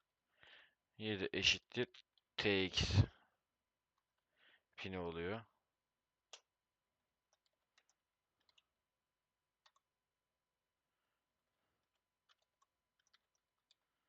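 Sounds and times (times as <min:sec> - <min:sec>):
faint keyboard clicks: 0:06.3 - 0:06.5, 0:07.3 - 0:08.7, 0:09.6 - 0:09.9, 0:11.9 - 0:13.9.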